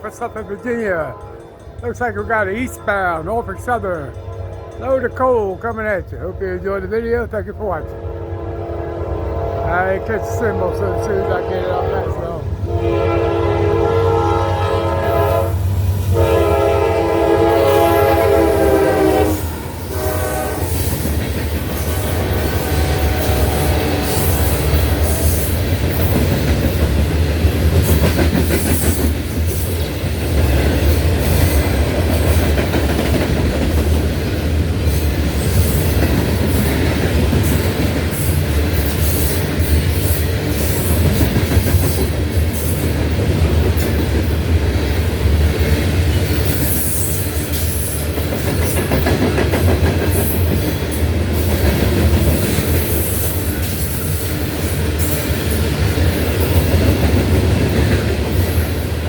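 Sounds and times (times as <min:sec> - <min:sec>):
train wheels clicking on rails: 0:15.1 - 0:59.0.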